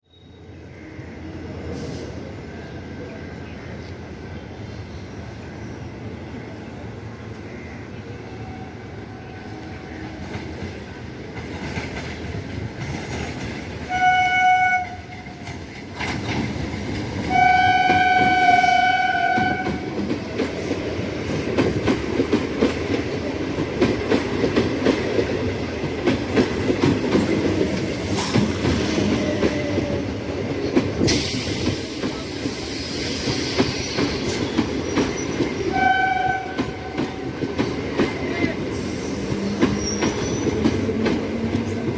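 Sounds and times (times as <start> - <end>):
train rumbling past: 0.4 - 41.9
train horn blasts: 13.9 - 15.4, 17.2 - 20.0, 35.7 - 37.2.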